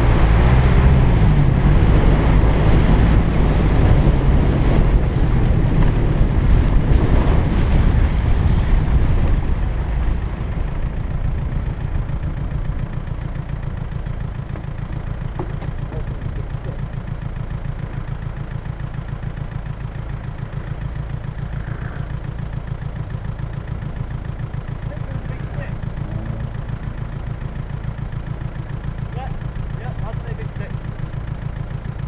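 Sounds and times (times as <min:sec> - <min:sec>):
wind noise: 0:00.0 - 0:12.9
car engine idling: 0:00.0 - 0:32.0.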